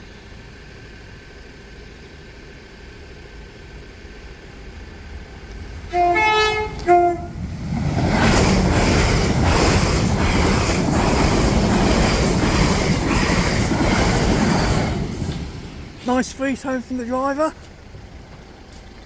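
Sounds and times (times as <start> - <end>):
train wheels rushing on rails: 3.8 - 19.0
two-tone train horn: 5.8 - 7.4.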